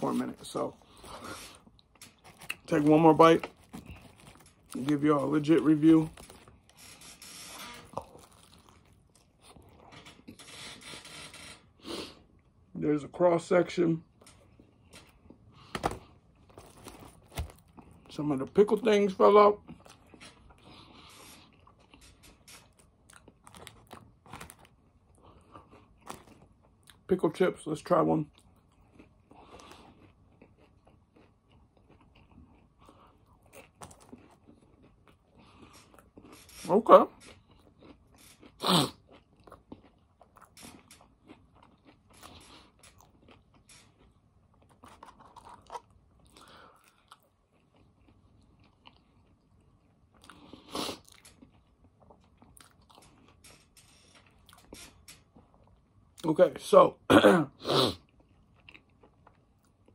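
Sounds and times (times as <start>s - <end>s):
soft crunches: 0.0s - 11.6s, 14.2s - 18.2s
person chewing crunchy sandwich: 0.0s - 12.6s, 14.2s - 18.9s, 19.6s - 27.1s, 28.2s - 56.2s, 57.5s - 59.9s.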